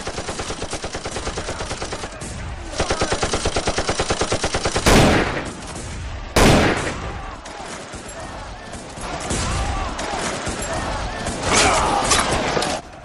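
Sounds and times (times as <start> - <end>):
machine-gun fire: 0.0 - 7.1.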